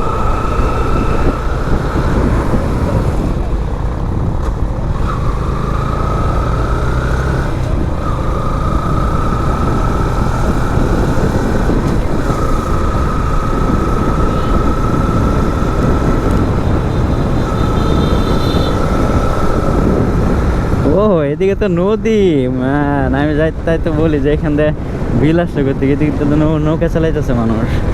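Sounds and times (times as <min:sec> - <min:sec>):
motorcycle engine running: 0:00.0 - 0:21.3
wind and road rumble: 0:00.0 - 0:27.9.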